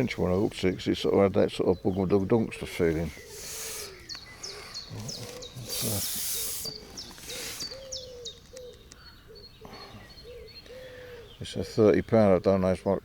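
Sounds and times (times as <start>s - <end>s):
birds chirping: 0.0s - 13.0s
rushing hiss: 3.3s - 4.0s, 5.6s - 7.8s.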